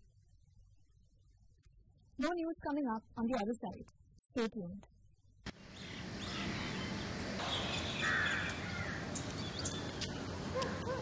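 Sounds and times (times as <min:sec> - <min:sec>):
birds calling: 0:05.5 - 0:11.0.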